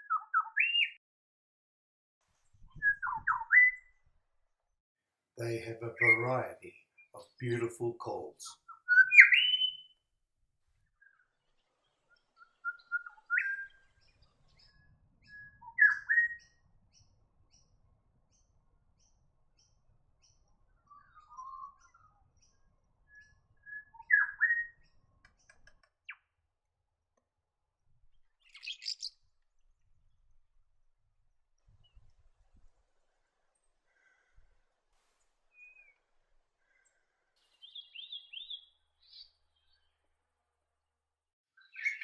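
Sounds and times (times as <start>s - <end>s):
bird whistling calls: 0.0s - 1.0s, 2.8s - 3.9s, 8.7s - 9.9s, 12.6s - 13.8s, 15.6s - 16.4s, 23.6s - 24.8s, 37.6s - 39.2s, 41.6s - 42.0s.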